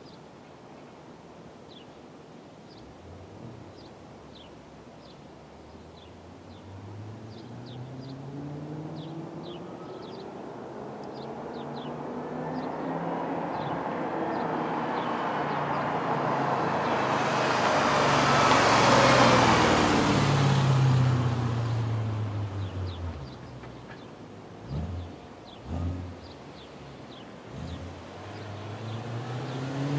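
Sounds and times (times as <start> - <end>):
birds chirping faintly: 0.0 - 29.9
car engine driving past: 6.6 - 29.9.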